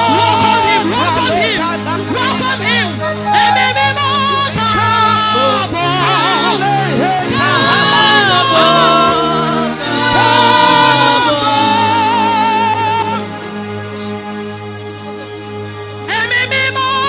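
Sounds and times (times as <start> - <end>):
gospel voices singing: 0.0 - 14.3
sustained keyboard bass notes: 3.1 - 4.3.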